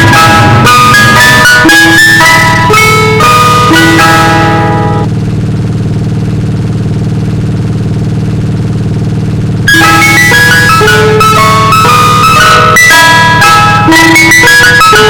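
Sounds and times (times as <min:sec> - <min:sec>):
ice cream truck chime melody: 0:00.0 - 0:05.1, 0:09.7 - 0:15.0
steady low hum: 0:00.0 - 0:14.2.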